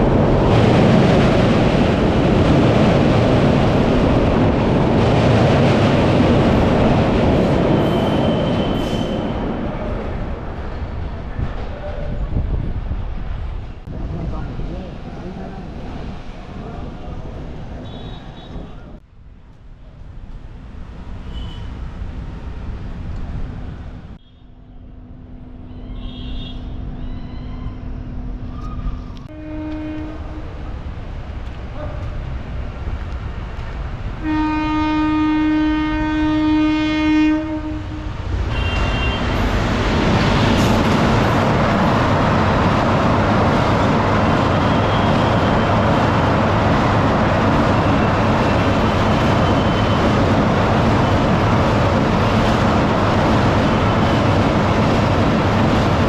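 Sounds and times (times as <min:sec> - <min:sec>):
train wheels rumbling on rails: 0:00.0 - 0:24.2, 0:28.2 - 0:56.0
low hum of approaching train: 0:00.0 - 0:56.0
locomotive horn blasts: 0:26.0 - 0:26.8, 0:29.3 - 0:30.5, 0:34.2 - 0:39.4, 0:44.6 - 0:45.6.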